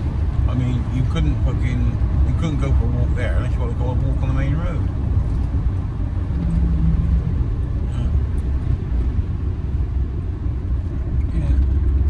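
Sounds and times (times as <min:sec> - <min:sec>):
engine and road noise rumble: 0:00.0 - 0:12.0.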